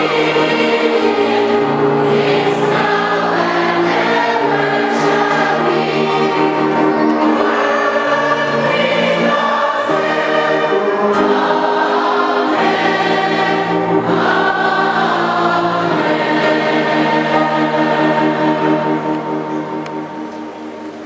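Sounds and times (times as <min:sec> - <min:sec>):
choir singing a hymn: 0:00.0 - 0:20.7.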